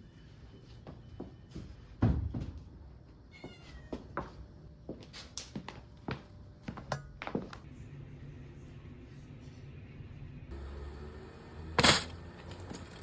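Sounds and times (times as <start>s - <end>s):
cat meowing: 3.3s - 4.2s.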